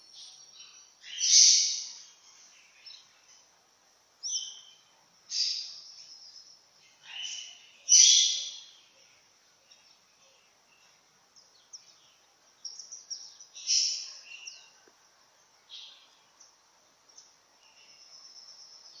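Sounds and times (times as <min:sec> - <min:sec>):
birds chirping: 0:00.0 - 0:19.0
faint high bird trill: 0:04.2 - 0:09.1.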